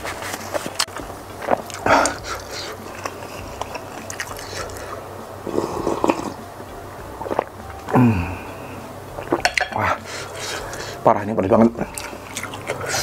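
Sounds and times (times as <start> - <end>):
person chewing food: 0.0 - 6.4, 7.0 - 11.0, 11.8 - 13.0
wet mouth clicks and smacks: 3.0 - 4.8
person groaning: 7.9 - 8.6.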